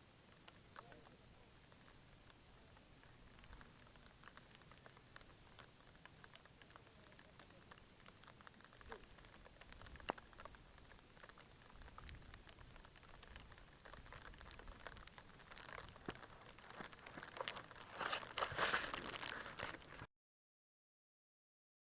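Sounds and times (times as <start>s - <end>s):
raindrops pattering: 0.0s - 20.1s.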